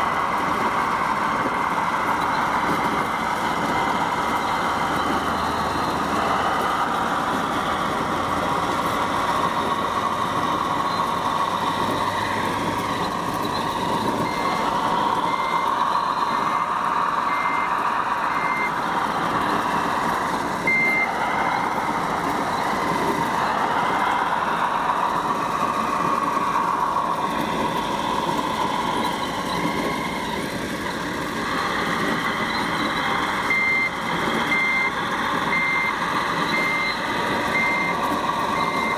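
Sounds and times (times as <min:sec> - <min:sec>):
reversing beeper: 0:10.8 - 0:24.1, 0:26.5 - 0:38.9.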